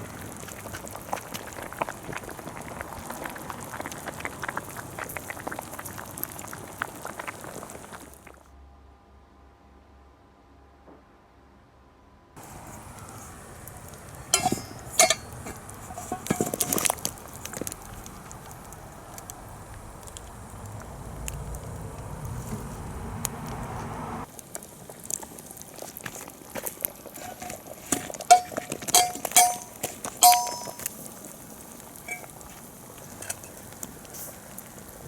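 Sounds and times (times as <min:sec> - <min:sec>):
metal utensils clinking cookware: 0:12.4 - 0:17.7, 0:27.2 - 0:31.0, 0:32.0 - 0:32.4, 0:33.0 - 0:33.6
steady hiss: 0:12.4 - 0:35.0.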